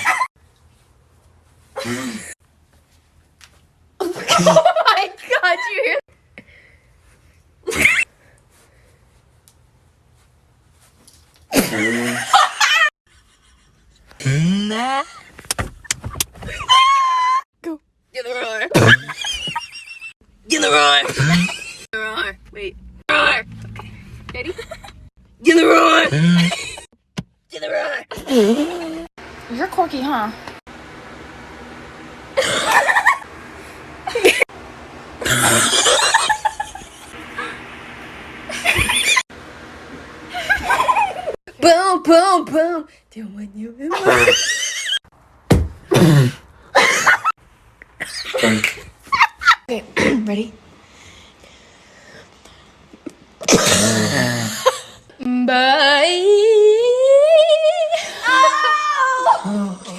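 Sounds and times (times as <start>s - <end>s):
person laughing: 4.0s - 5.4s, 11.6s - 15.2s, 21.0s - 21.8s, 28.1s - 29.1s, 34.1s - 34.5s, 35.2s - 37.6s, 38.5s - 39.2s, 40.3s - 41.4s
person vocalizing: 14.2s - 15.0s.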